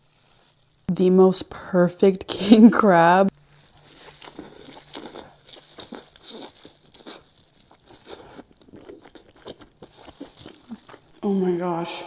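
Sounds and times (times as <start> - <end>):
crab shell crunching when eaten: 3.3 - 11.3.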